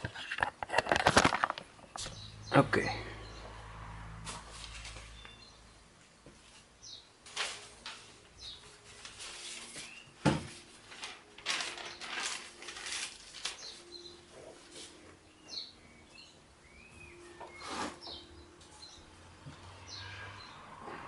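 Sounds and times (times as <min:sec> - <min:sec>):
birds chirping: 0:01.8 - 0:03.8, 0:04.8 - 0:06.2, 0:13.5 - 0:21.0.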